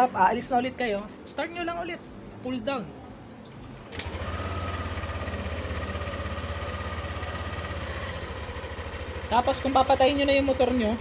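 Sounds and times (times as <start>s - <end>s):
scooter engine starting and idling: 3.6s - 11.0s.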